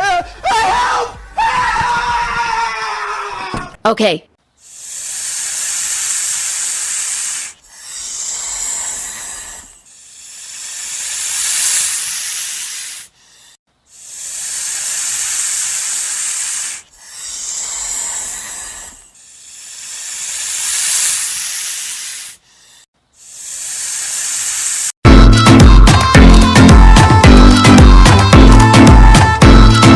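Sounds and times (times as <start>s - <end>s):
long high-pitched hisses: 4.6s - 25.0s.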